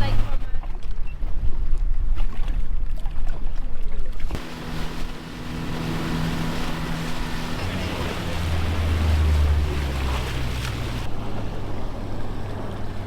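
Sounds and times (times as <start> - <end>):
water noise: 0.0 - 13.0
boat motor running: 4.2 - 13.0.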